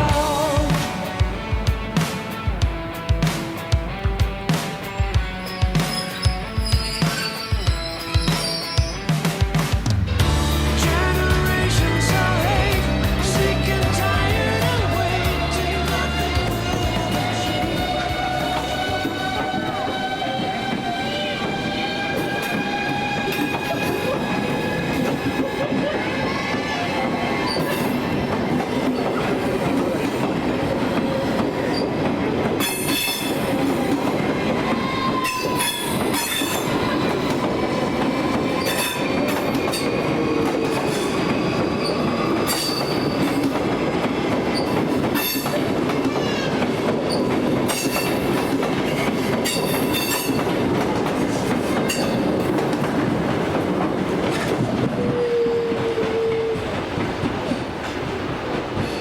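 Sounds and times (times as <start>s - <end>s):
train wheels rolling on tracks: 0.0s - 59.0s
wheel squeals: 5.2s - 9.2s.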